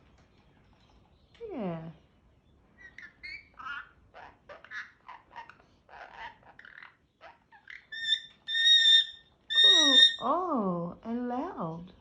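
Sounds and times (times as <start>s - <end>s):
parrot chattering: 2.8s - 10.3s.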